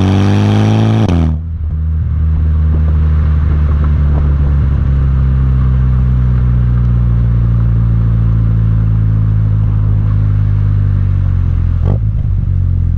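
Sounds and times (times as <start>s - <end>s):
car engine exhaust drone: 0.0s - 12.9s.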